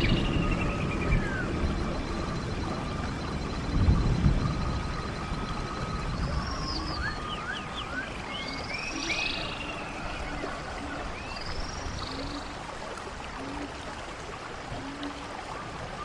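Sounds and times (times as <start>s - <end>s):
birds singing whistled notes: 0.0s - 12.6s
stream water rushing: 0.0s - 16.0s.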